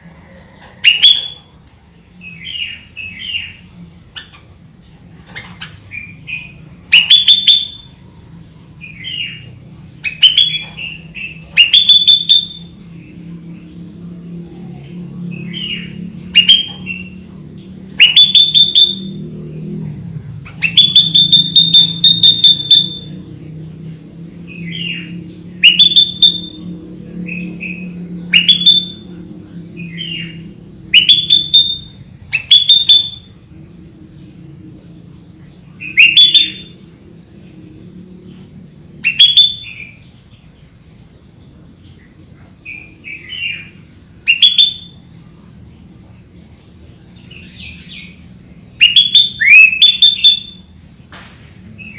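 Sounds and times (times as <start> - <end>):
steady low hum: 0.0 - 44.3
bird whistling upward notes: 10.0 - 12.8, 18.0 - 19.2, 20.6 - 23.2, 24.7 - 26.6, 30.0 - 33.3, 35.8 - 36.8, 39.0 - 40.0, 44.3 - 45.0, 48.8 - 50.7.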